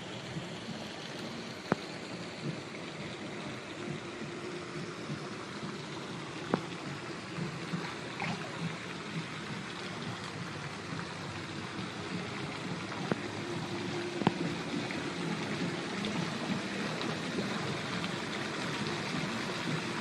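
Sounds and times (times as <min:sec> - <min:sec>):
splashing flowing water: 0:00.0 - 0:20.0.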